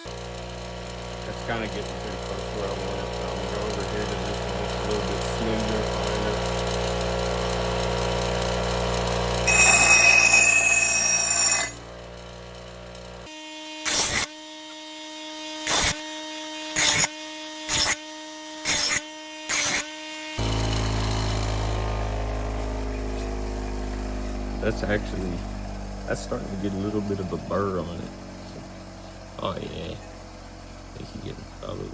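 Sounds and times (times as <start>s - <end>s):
grinder motor hum: 0.0s - 31.9s
axe edge grinding on wheel: 1.4s - 12.7s, 16.8s - 17.1s, 18.6s - 19.8s.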